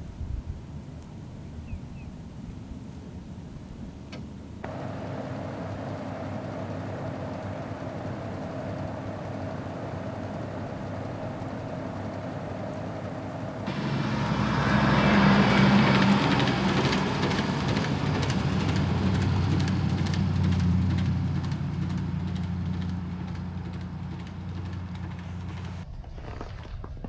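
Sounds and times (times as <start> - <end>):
road noise: 4.1 - 25.9
vehicle engine hum: 4.3 - 25.9.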